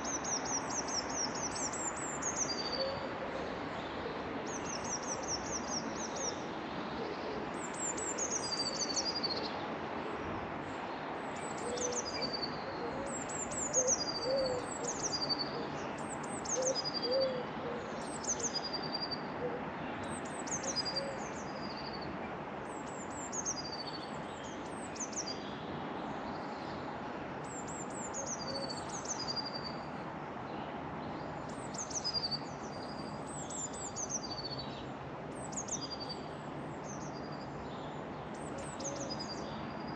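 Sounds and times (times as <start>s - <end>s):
background noise: 0.0s - 39.9s.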